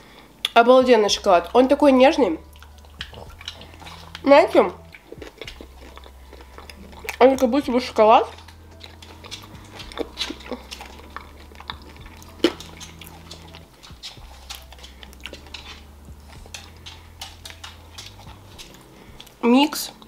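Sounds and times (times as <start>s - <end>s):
chewing chocolate: 0.4s - 20.0s
wet mouth smacks and clicks: 2.5s - 7.5s, 8.3s - 19.4s.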